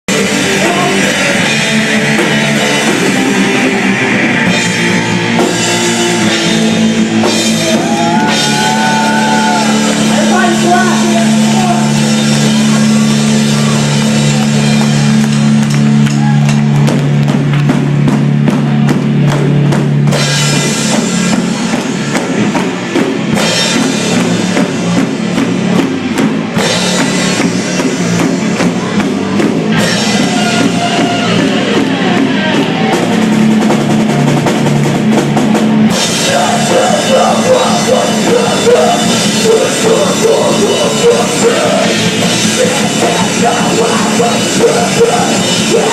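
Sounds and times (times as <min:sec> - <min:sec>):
bass drum beat: 0:00.0 - 0:45.9
rock band playing live: 0:00.0 - 0:45.9.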